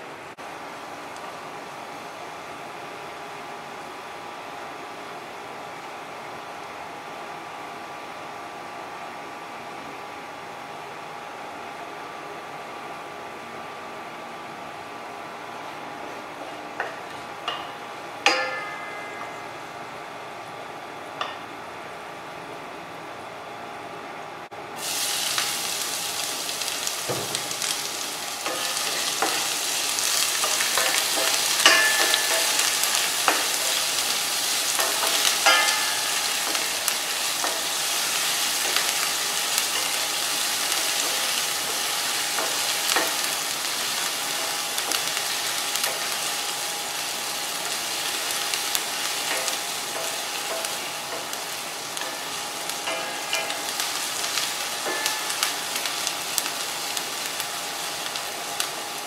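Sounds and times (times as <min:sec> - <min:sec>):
onions sizzling in oil: 0:24.8 - 0:59.0.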